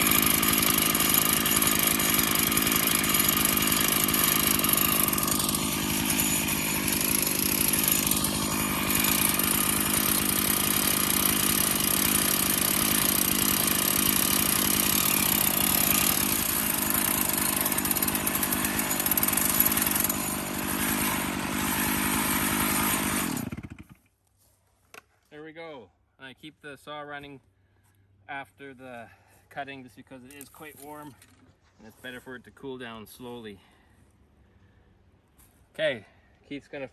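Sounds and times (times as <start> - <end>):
chainsaw cutting log: 0.0 - 24.0.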